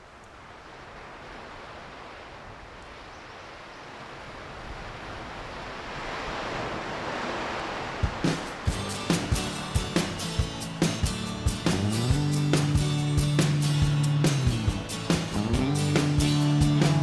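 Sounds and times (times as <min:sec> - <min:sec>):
ocean surf rushing: 0:03.9 - 0:17.0
music with thumping beat: 0:08.1 - 0:17.0.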